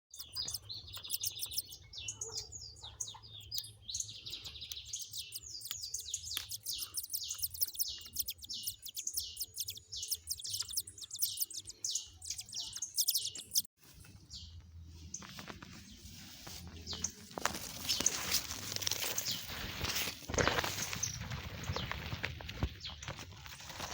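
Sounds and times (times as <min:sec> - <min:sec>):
nestling birds peeping: 0:00.1 - 0:23.2
rustling noise: 0:13.8 - 0:23.9.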